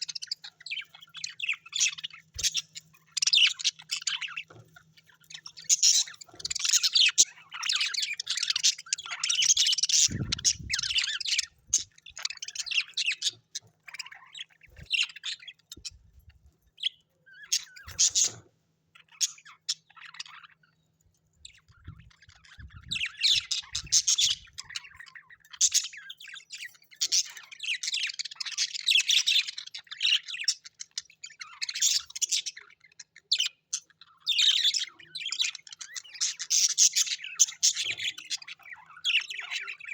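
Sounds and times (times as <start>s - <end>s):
bird squawks: 0.0s - 15.9s, 16.8s - 20.8s
birds chattering and chirping: 0.0s - 39.9s.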